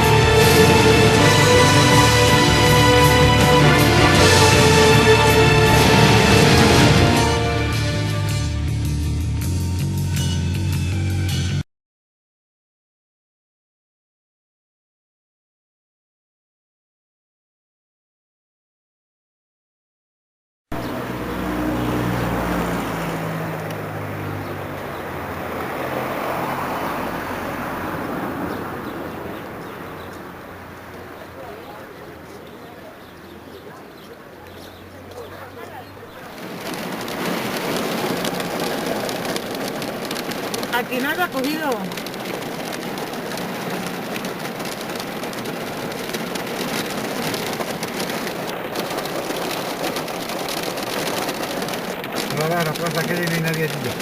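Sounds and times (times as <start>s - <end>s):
heavy rain downpour: 0.0s - 8.5s, 20.7s - 54.0s.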